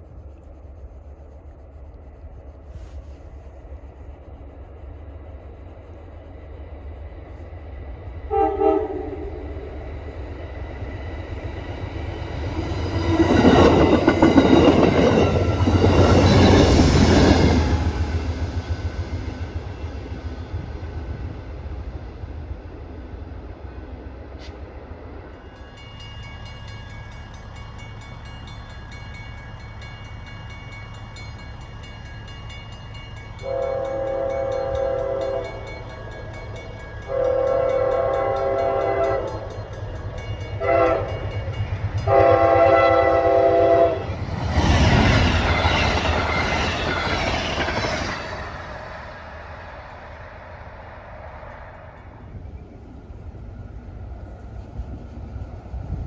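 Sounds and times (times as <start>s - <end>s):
train passing by: 0.0s - 56.0s
train air horn blasts: 8.3s - 9.7s, 33.4s - 35.7s, 37.1s - 39.4s, 40.6s - 41.2s, 42.1s - 44.1s.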